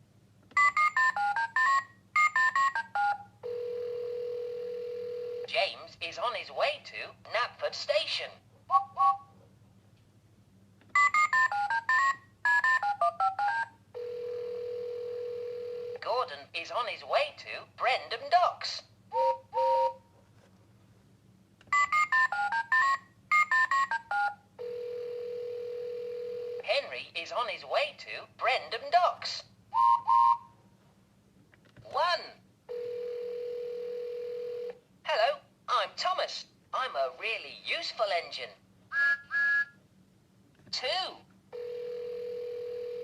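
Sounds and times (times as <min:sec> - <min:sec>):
toy phone tooting tones: 0:00.6 - 0:05.2, 0:11.0 - 0:15.9, 0:21.7 - 0:26.2, 0:41.6 - 0:43.0.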